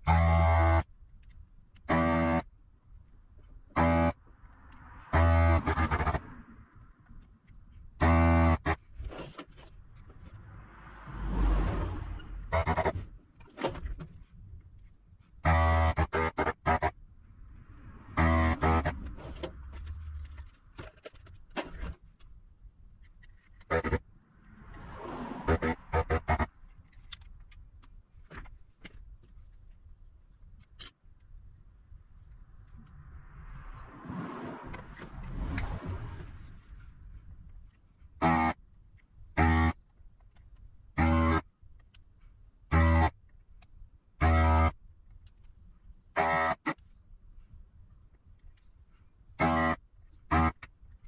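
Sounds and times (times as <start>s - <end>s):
loud electric buzz: 5.2s - 6.2s, 18.2s - 19.0s
sharp metallic clicks: 30.6s - 31.0s.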